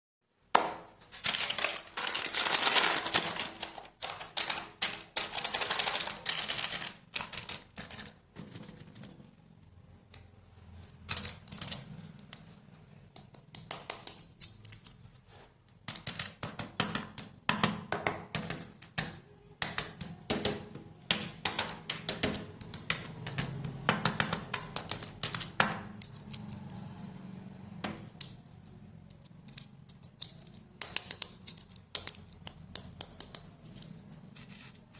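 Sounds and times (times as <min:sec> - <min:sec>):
wrappers crinkling: 0:01.0 - 0:07.8.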